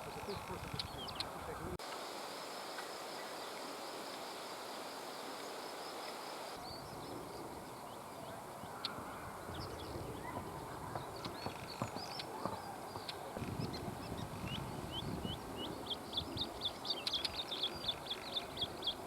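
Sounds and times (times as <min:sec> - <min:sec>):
high insect trill: 0:01.8 - 0:06.6.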